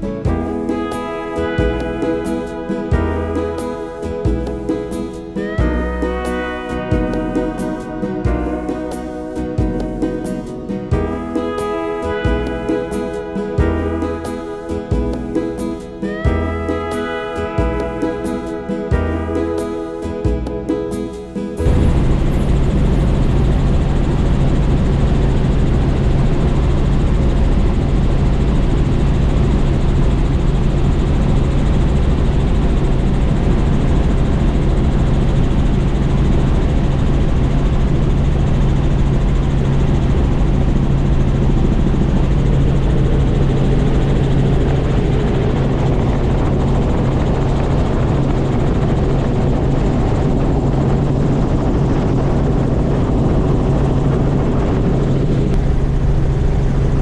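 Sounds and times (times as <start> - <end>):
helicopter rotor and engine: 21.6 - 57.0.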